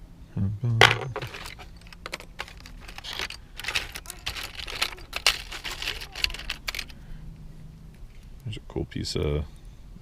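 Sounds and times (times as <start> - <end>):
metal jewelry clinking and rattling: 0.9 - 7.0.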